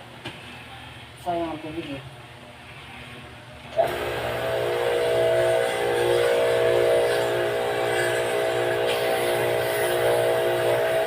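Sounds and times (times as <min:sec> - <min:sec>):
pressure washer motor hum: 0:03.7 - 0:11.0.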